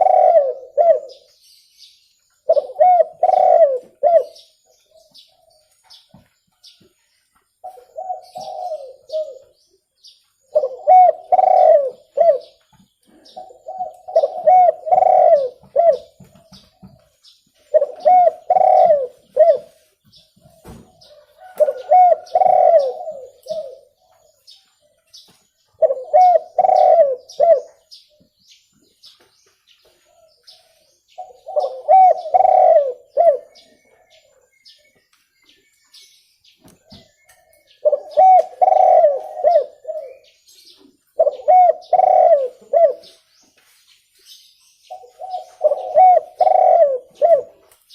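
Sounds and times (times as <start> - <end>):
dove cooing: 0.0 - 1.3, 2.4 - 5.7, 7.6 - 9.6, 10.5 - 19.8, 20.5 - 25.0, 25.7 - 28.2, 30.0 - 34.4, 36.8 - 43.3, 44.9 - 47.8.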